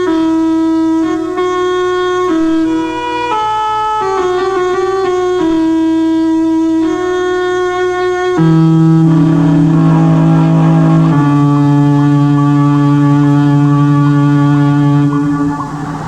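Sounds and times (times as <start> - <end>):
low sustained synth note: 4.0 - 16.0
dungeon synth music: 8.4 - 16.0
hissy noise: 14.0 - 16.0.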